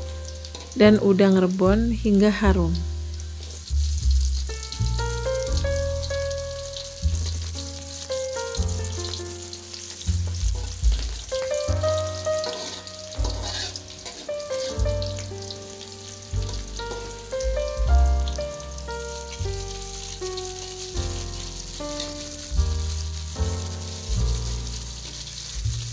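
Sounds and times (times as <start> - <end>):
background music: 0.0 - 25.9
garlic sizzling in hot oil: 0.0 - 25.9
metal spatula stirring in wok: 0.3 - 0.8, 9.1 - 15.6.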